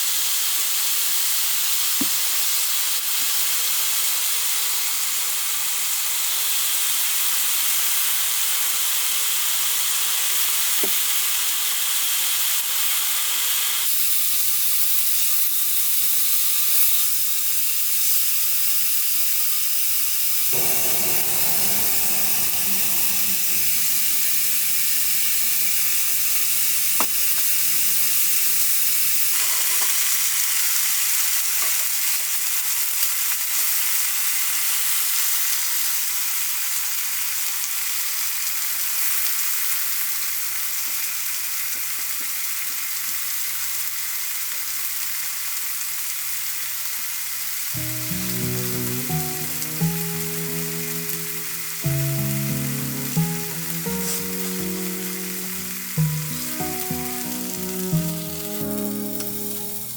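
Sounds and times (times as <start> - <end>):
soft music: 20.6 - 28.0, 47.8 - 59.9
food sizzling in a frying pan: 20.6 - 59.9.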